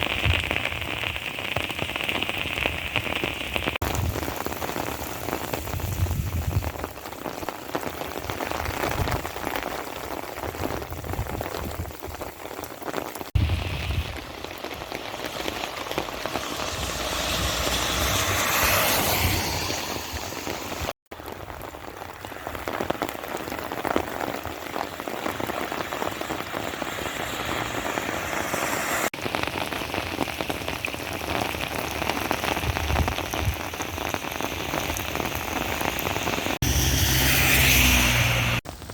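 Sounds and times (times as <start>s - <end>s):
rain pattering: 0.0s - 38.9s
whooshing noise: 15.2s - 21.0s.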